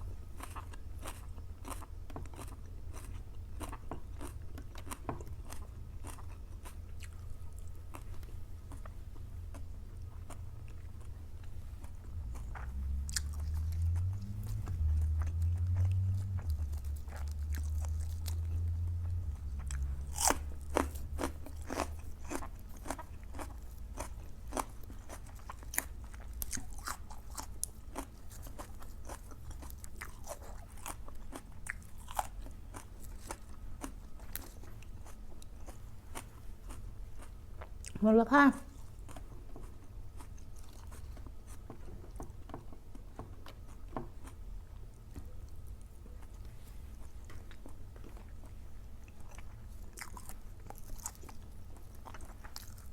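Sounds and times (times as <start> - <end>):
person chewing crunchy food: 0.0 - 38.0, 38.7 - 52.9
low rumble: 10.0 - 22.2.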